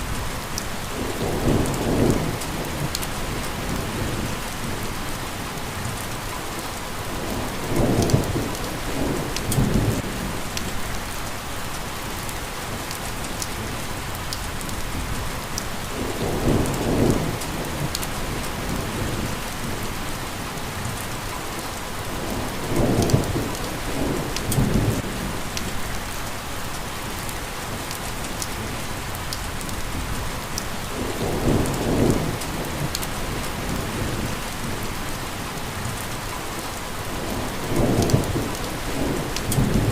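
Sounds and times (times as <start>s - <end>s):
steady rain hiss: 0.0s - 39.9s
raindrop ticks: 9.4s - 9.8s, 10.5s - 10.7s, 24.4s - 24.7s, 31.6s - 33.8s, 37.8s - 39.9s.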